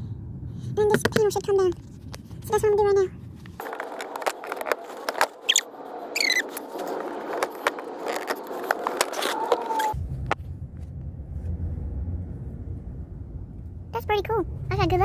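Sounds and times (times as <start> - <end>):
low steady rumble: 0.0 - 15.0
plastic squeaking: 3.6 - 10.0.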